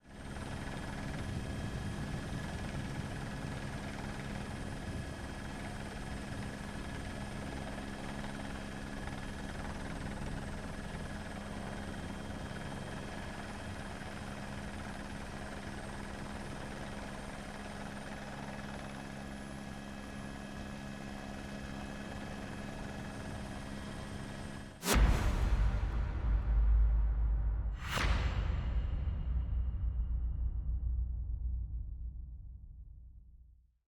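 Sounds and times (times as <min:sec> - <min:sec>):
helicopter rotor beat: 0:00.1 - 0:24.8
helicopter turbine whine: 0:00.1 - 0:24.8.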